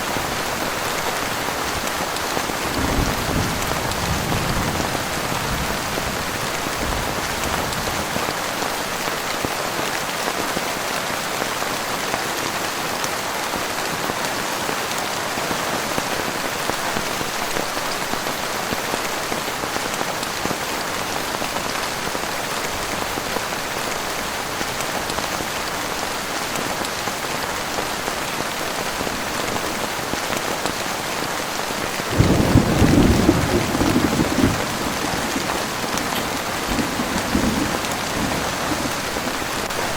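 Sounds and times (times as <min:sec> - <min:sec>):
heavy rain: 0:00.0 - 0:39.9
thunder rumble: 0:02.7 - 0:07.9, 0:32.1 - 0:39.7.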